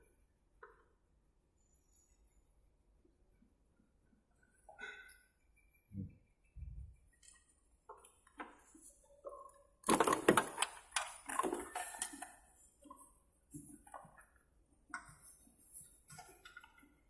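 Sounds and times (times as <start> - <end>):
clicks and rattles: 9.3 - 12.6.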